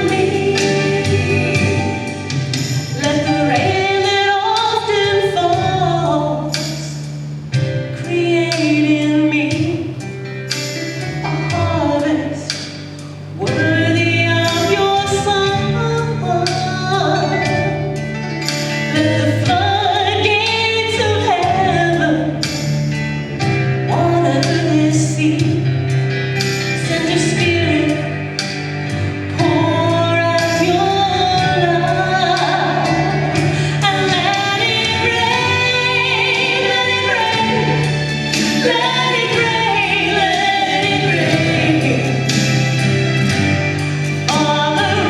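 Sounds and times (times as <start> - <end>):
woman singing: 0.0 - 7.0, 7.9 - 10.1, 11.2 - 12.6, 13.3 - 17.9, 18.9 - 22.6, 23.9 - 25.8, 26.8 - 28.2, 29.3 - 42.9, 44.2 - 45.0
instrumental accompaniment with beat: 0.0 - 45.0.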